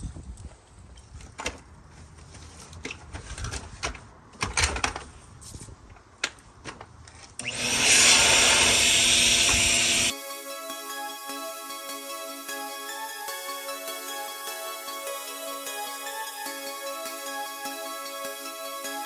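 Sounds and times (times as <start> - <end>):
electric power tool running: 7.4 - 10.2.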